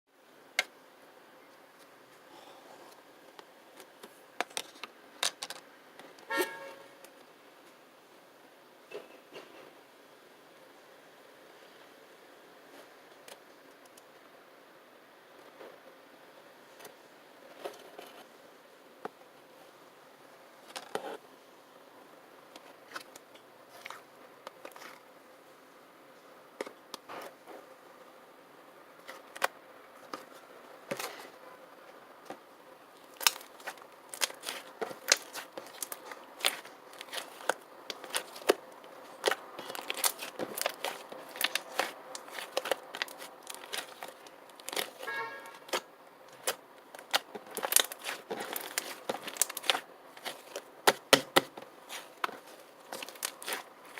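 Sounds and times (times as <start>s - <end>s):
squeak-like tone: 6.3s - 6.9s.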